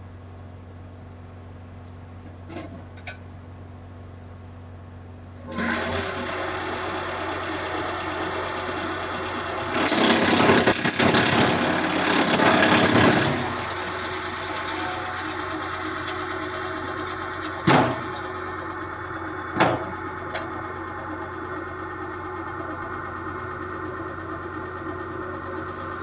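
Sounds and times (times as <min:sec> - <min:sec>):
wood chipper engine running: 0:04.9 - 0:26.0
loud rough grinding noise: 0:05.5 - 0:26.0.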